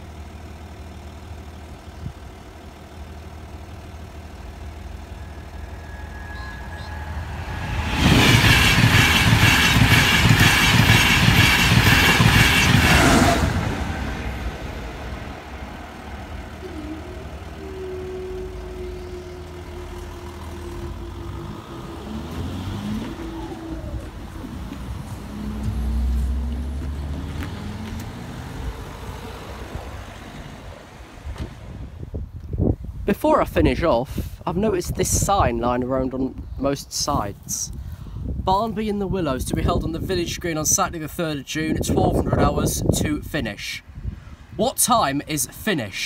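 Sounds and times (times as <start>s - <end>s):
rhythmic clatter of wheels: 0.0s - 18.6s
train passing at speed: 4.0s - 32.1s.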